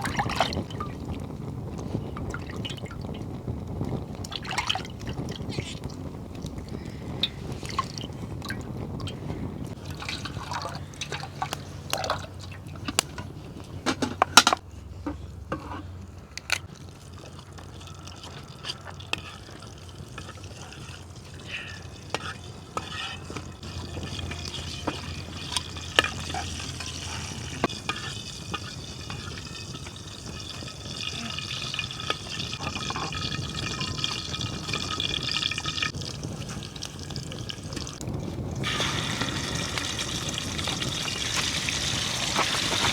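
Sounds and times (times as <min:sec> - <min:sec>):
liquid being poured or stirred: 0:00.0 - 0:14.2, 0:16.4 - 0:42.9
pots and bowls knocking: 0:23.6 - 0:35.6.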